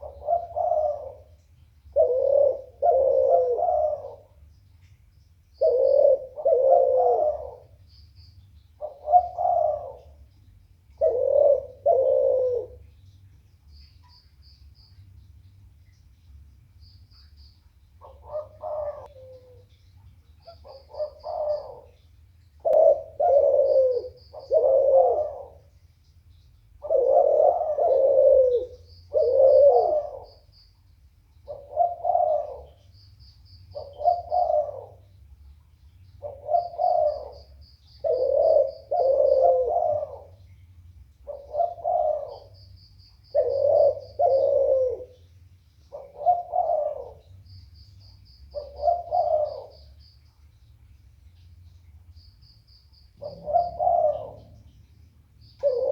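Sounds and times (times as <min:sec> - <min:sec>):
dove cooing: 0:00.0 - 0:04.5, 0:05.6 - 0:07.9, 0:08.8 - 0:13.0, 0:18.0 - 0:25.8, 0:26.7 - 0:30.5, 0:31.4 - 0:32.9, 0:33.7 - 0:35.2, 0:36.2 - 0:47.5, 0:48.5 - 0:50.0, 0:53.1 - 0:54.8, 0:55.6 - 0:55.9.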